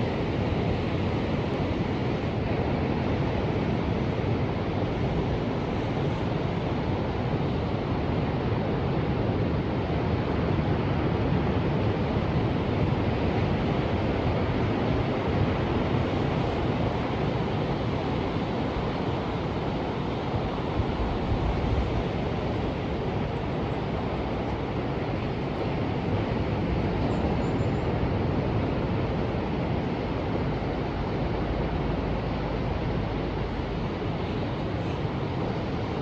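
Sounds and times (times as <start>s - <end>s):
ocean waves rushing: 16.6s - 36.0s.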